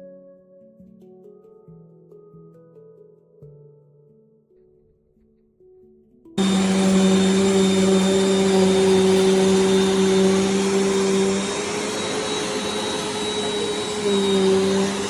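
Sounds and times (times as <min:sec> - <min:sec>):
vacuum cleaner running: 0:06.4 - 0:15.0.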